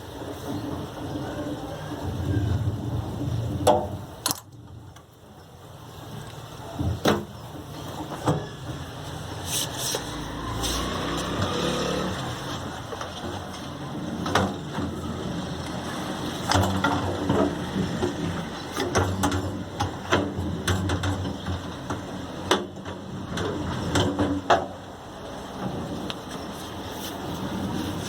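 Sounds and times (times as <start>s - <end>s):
metal clicks and knocks: 3.6s - 5.1s.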